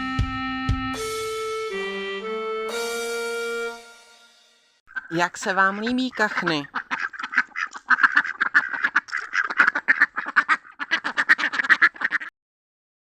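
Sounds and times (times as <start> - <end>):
ducks quacking: 4.9 - 12.3.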